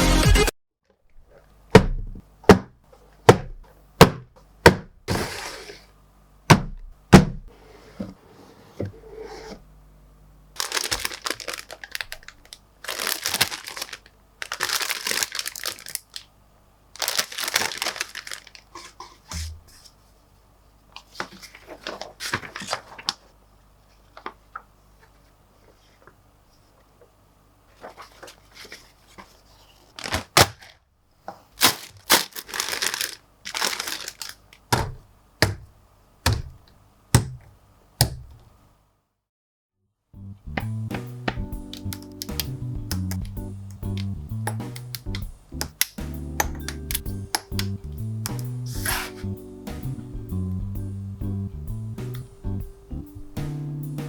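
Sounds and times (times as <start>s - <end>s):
cardboard box knocks and taps: 3.3s - 4.9s, 6.5s - 7.5s
plastic bags crinkling: 10.6s - 16.3s, 17.0s - 19.0s, 31.6s - 35.0s.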